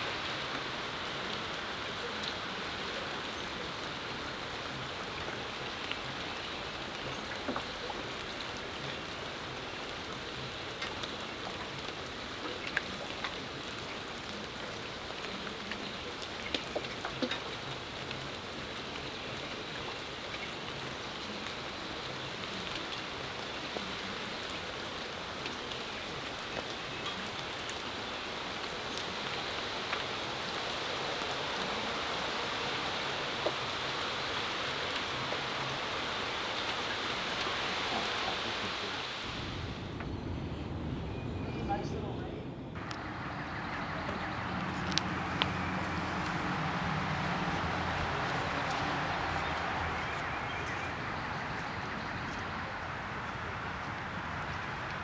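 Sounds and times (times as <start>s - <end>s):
steady rain falling: 0.0s - 55.0s
water drops ticking: 44.0s - 50.8s.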